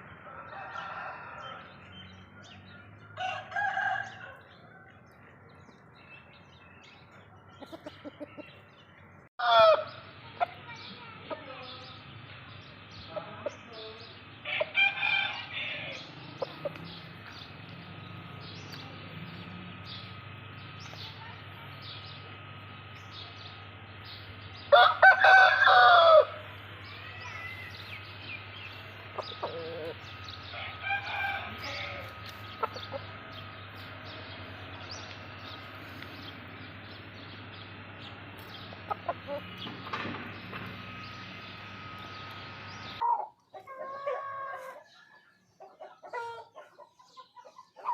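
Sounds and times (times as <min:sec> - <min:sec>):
roosters calling and clucking: 0:00.0 - 0:47.9
rooster crowing: 0:00.2 - 0:01.9, 0:03.1 - 0:05.0, 0:09.4 - 0:09.9, 0:14.5 - 0:16.1, 0:24.7 - 0:26.5, 0:29.2 - 0:32.2.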